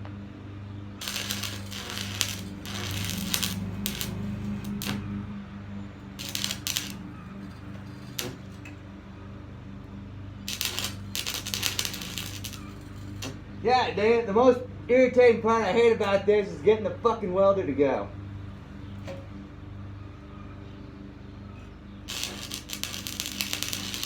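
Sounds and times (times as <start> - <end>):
crackling welding arc: 1.0 - 5.3, 6.1 - 8.8, 10.5 - 13.4, 22.1 - 24.0
arc welder humming: 1.0 - 9.0, 9.7 - 14.0, 22.0 - 24.0.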